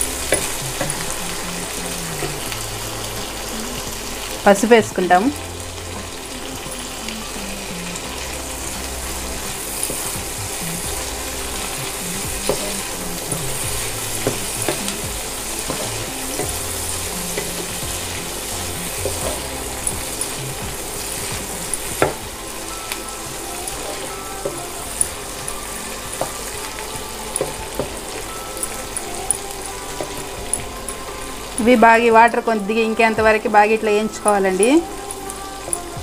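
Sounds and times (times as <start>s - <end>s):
fish sizzling in oil: 0.0s - 36.0s
spatula scraping and tapping: 12.4s - 16.7s.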